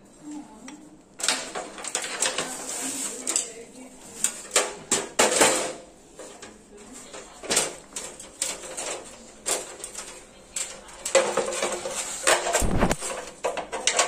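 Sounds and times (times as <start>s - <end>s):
hard objects knocking and clattering: 4.2s - 6.5s, 7.1s - 14.0s.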